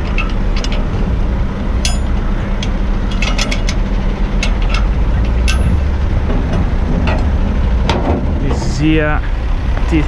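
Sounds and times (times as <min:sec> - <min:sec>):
diesel engine idling: 0:00.0 - 0:10.0
metallic clicks and clinks: 0:01.8 - 0:05.8.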